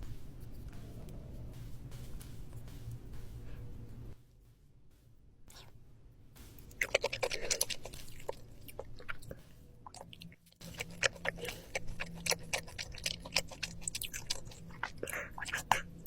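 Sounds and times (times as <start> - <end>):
person chewing with wet smacks: 6.6 - 16.0.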